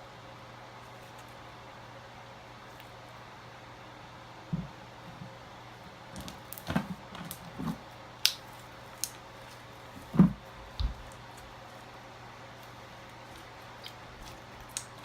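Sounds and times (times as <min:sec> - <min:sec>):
slime squelching: 0:06.1 - 0:15.0.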